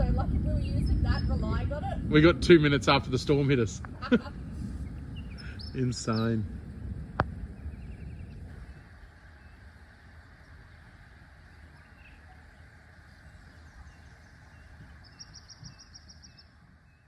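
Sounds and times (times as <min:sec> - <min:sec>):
low rumble: 0:00.0 - 0:17.0
birds calling: 0:02.9 - 0:17.0
rapid bird trill: 0:11.4 - 0:17.0.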